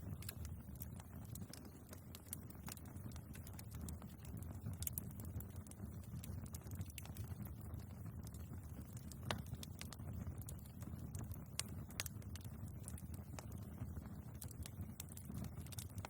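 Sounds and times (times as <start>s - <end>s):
logs crackling and popping: 0.0s - 16.0s
low rumble of flames: 0.0s - 16.0s.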